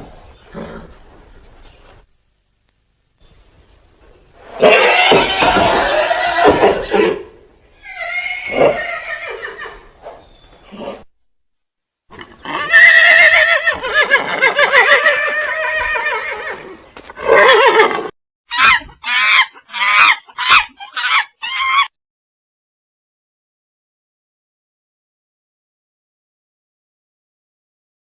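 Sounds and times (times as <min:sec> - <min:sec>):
animal calls: 0:17.2 - 0:21.9.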